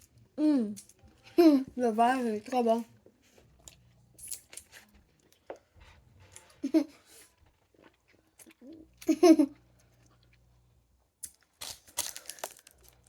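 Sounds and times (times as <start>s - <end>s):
biting and chewing wax candy: 11.2s - 13.0s
crisp crunching and crackling: 11.2s - 13.0s.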